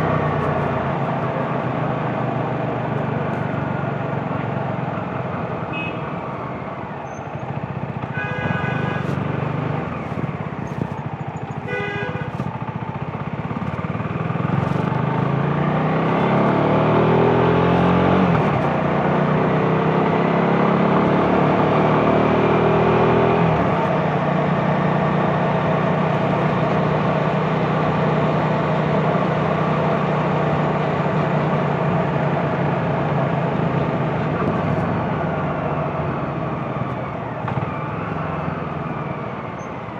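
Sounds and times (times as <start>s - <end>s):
motorcycle engine accelerating: 0.0s - 39.9s
vehicle horn short beeps: 5.7s - 6.2s, 8.1s - 10.0s, 11.5s - 12.5s.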